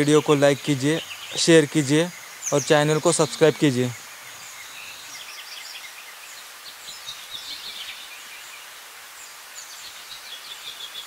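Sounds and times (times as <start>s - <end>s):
birds chirping: 0.0s - 8.7s
steady outdoor hiss: 0.0s - 11.0s.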